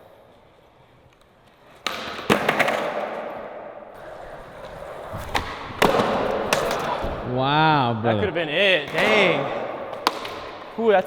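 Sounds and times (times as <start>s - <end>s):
skateboard wheels rolling: 0.0s - 7.3s, 8.6s - 10.9s
skateboard clacks: 1.7s - 3.4s, 4.0s - 7.0s, 8.7s - 10.8s.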